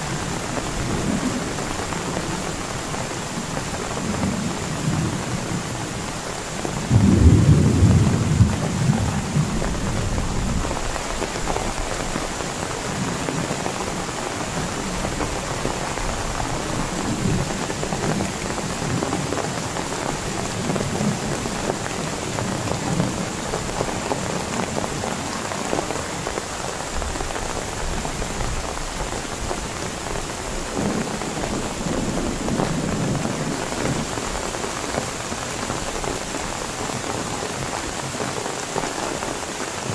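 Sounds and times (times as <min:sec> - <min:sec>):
heavy rain falling: 0:00.0 - 0:39.9
thunder rumbling: 0:06.8 - 0:12.2.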